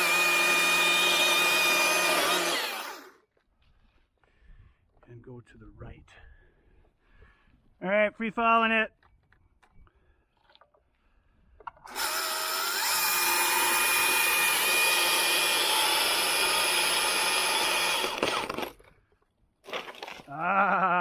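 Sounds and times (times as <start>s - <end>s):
chainsaw revving and cutting: 0.0s - 3.2s, 11.9s - 18.8s.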